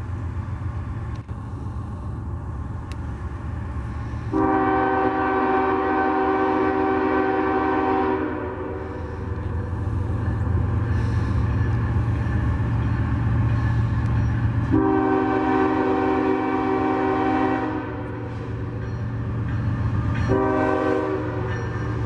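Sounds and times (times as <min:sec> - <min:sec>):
locomotive engine rumbling: 0:00.0 - 0:22.0
locomotive air horn blast: 0:04.1 - 0:09.4, 0:14.6 - 0:18.4, 0:20.3 - 0:21.5.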